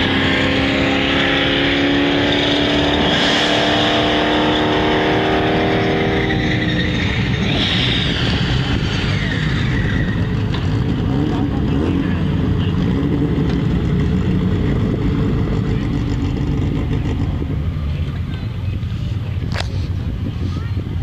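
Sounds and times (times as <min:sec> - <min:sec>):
race car engines rumbling: 0:00.0 - 0:21.0
wind on microphone: 0:19.0 - 0:21.0.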